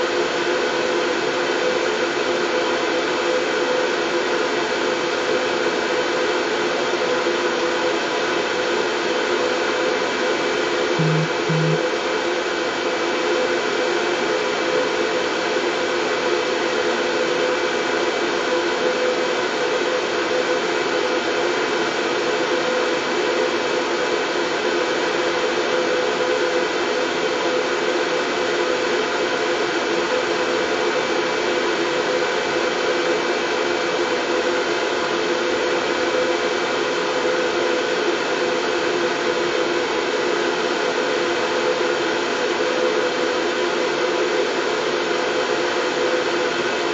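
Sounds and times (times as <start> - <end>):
faint steady hum tones: 11.0 - 11.8.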